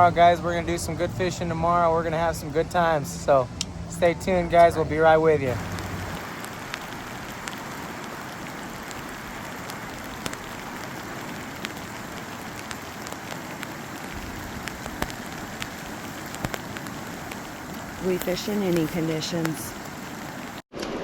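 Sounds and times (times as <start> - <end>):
heavy rain hiss: 0.0 - 20.6
raindrops clicking nearby: 3.5 - 3.8, 5.5 - 20.6.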